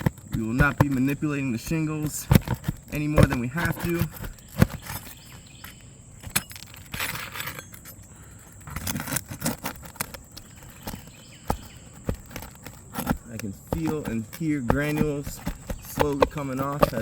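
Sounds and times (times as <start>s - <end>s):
dull knocks: 0.0s - 5.5s, 10.4s - 17.0s
tool scraping shingles: 0.0s - 17.0s.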